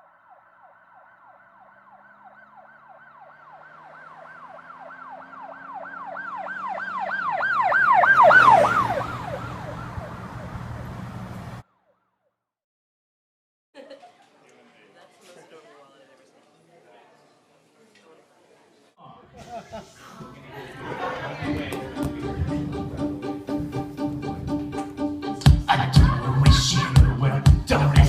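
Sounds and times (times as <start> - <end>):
siren yelping: 0.0 - 11.2
vehicle noise: 0.0 - 11.7, 20.6 - 25.2.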